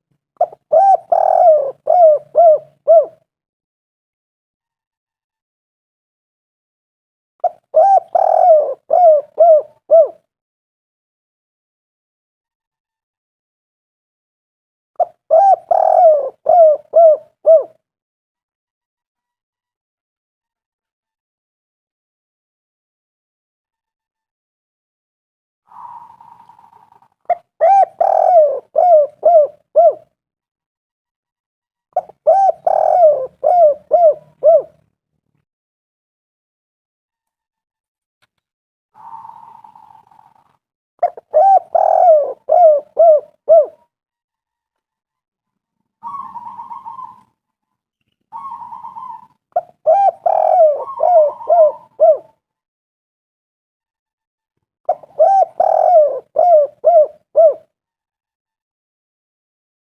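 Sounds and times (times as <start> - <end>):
dove cooing: 0.4 - 3.2, 7.4 - 10.2, 15.0 - 17.8, 25.8 - 30.1, 32.0 - 34.8, 41.0 - 43.8, 46.0 - 47.3, 48.3 - 52.3, 54.9 - 57.7.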